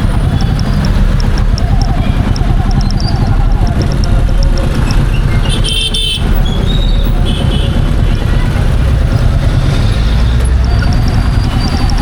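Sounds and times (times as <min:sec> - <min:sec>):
motorcycle engine running: 0:00.0 - 0:12.0
road noise: 0:00.0 - 0:12.0
vehicle horn toots: 0:05.5 - 0:08.6.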